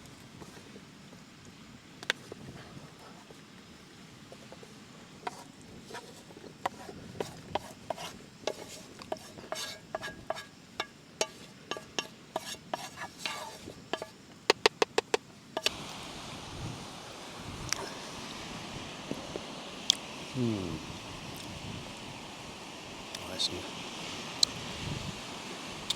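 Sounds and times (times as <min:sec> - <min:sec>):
cutlery scraping metal pan: 0:05.3 - 0:14.2
sharp taps: 0:14.0 - 0:15.7.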